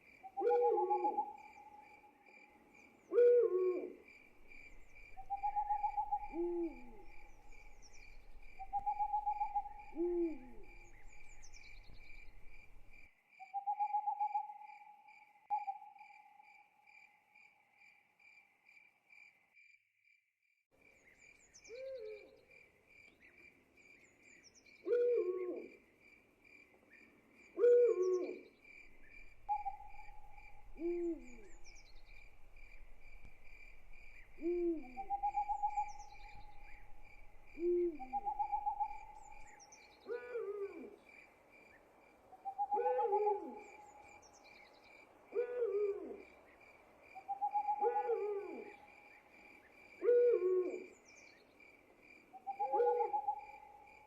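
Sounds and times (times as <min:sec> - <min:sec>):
owl hooting: 0:00.3 - 0:01.9, 0:03.1 - 0:12.8, 0:21.7 - 0:22.3, 0:24.8 - 0:25.7, 0:27.6 - 0:41.0, 0:42.4 - 0:44.2, 0:45.3 - 0:46.2, 0:47.2 - 0:48.9, 0:50.0 - 0:51.0, 0:52.4 - 0:53.8
pulsing cricket trill: 0:28.9 - 0:39.6.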